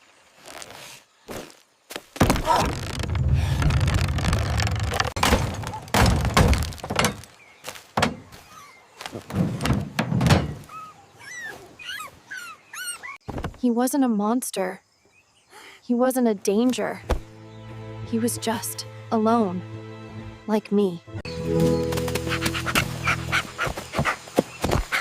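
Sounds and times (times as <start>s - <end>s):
heavy thuds and breaking: 2.2s - 7.3s
dog whimpering: 10.7s - 13.2s.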